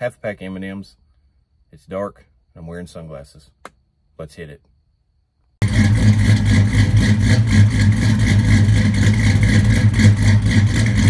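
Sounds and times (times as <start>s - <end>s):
car engine and exhaust running: 5.6s - 11.0s.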